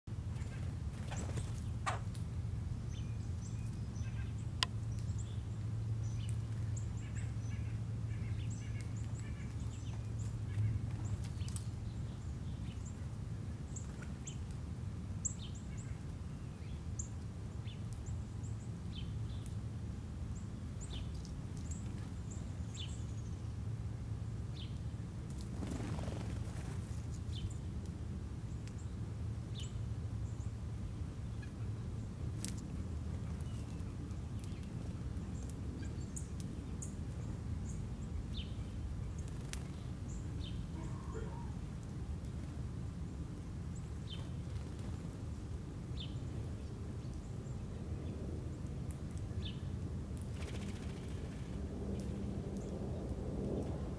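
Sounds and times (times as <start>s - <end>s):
low background hum: 0.1s - 53.9s
small birds chirping: 0.2s - 14.6s, 20.3s - 23.7s, 28.4s - 42.6s.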